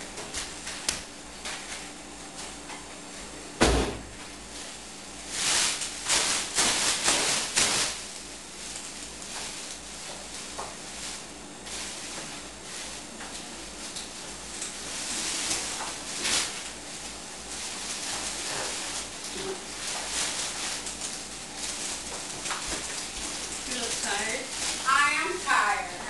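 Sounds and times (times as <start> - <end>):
rustling and clattering: 8.6 - 25.0.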